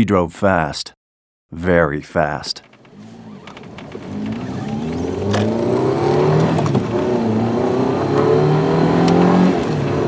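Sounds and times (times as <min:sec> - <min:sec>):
car engine revving: 0:02.7 - 0:10.0.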